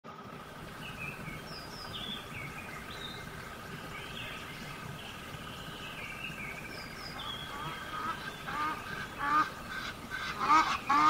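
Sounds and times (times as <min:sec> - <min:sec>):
small birds chirping: 0:00.7 - 0:11.0.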